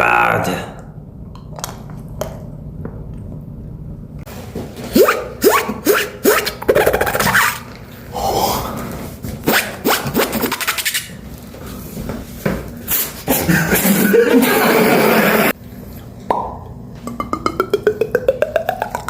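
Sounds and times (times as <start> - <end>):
beatbox hissing rush: 9.5 - 11.1
beatbox clicks and pops: 16.3 - 19.0.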